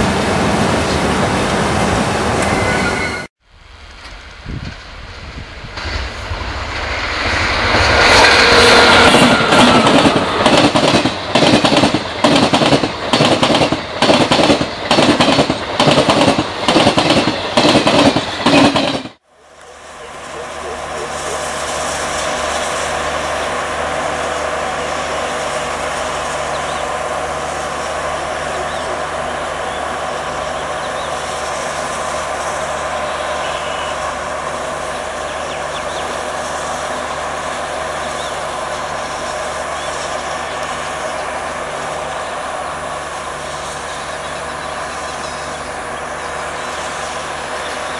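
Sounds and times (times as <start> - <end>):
train wheels clacking past: 5.8 - 19.2
diesel generator droning: 19.2 - 47.9.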